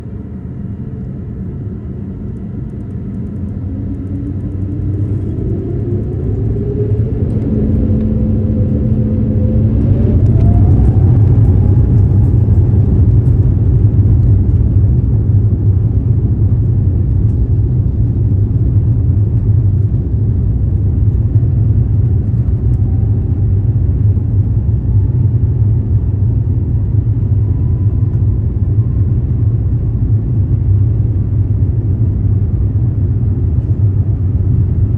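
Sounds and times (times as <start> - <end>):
loud rumble of takeoff run: 0.0 - 34.9
jet engines spooling up: 2.1 - 15.9.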